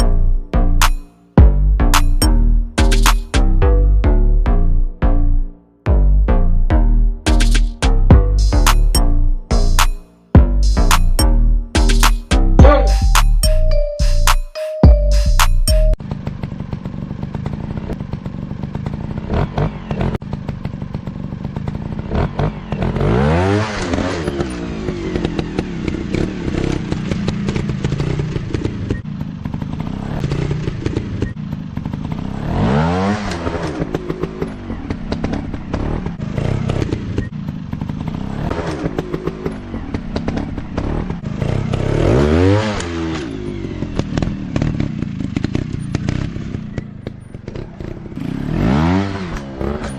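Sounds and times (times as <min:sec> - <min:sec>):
dirt bike engine revving: 0:16.2 - 0:49.9.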